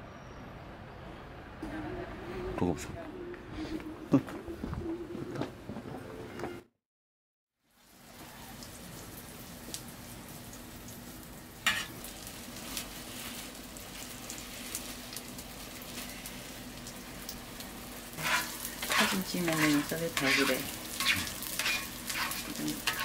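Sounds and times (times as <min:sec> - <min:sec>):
pancakes sizzling in oil: 0:07.6 - 0:23.0.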